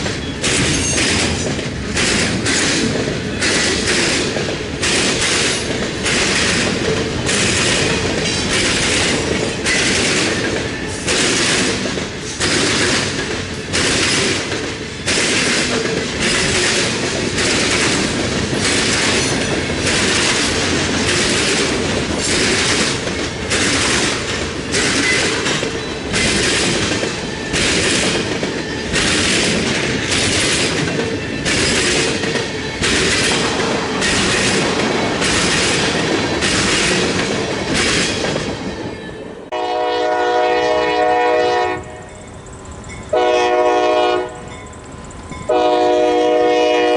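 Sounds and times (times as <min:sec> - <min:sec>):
train wheels clattering on rails: 0:00.0 - 0:46.9
locomotive horn chord: 0:39.5 - 0:42.1, 0:43.1 - 0:44.5, 0:45.5 - 0:46.9.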